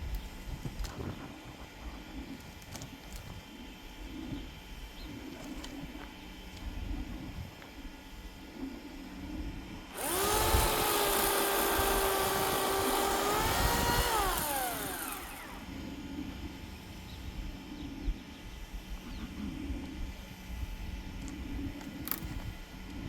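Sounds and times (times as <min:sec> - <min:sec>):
electric chainsaw motor: 0:09.9 - 0:16.0.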